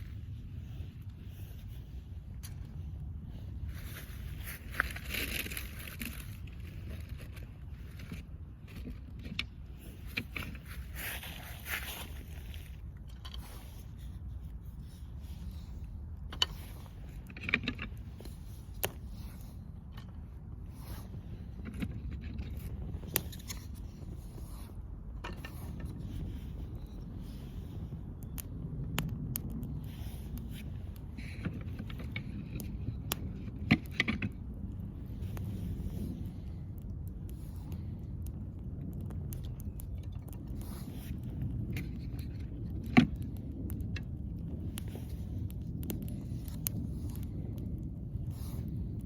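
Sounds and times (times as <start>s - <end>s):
campfire crackling and popping: 0.0s - 49.0s
wind rumble on microphone: 0.0s - 49.0s
sharp clicks and snaps: 15.4s - 20.2s, 25.2s - 49.0s.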